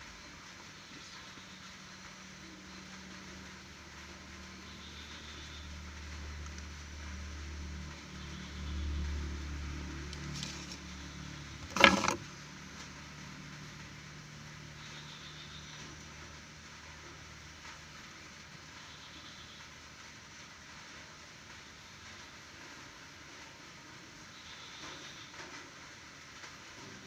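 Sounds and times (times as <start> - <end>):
passing vehicle rumble: 5.6 - 14.6.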